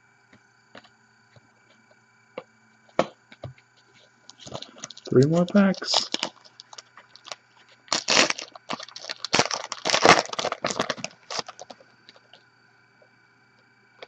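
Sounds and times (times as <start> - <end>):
foil wrapper tearing and crinkling: 4.3 - 11.8.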